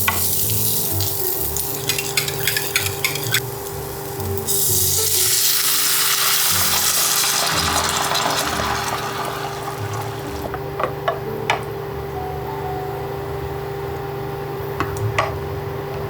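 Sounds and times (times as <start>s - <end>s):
food sizzling in a hot pan: 0.0s - 10.5s.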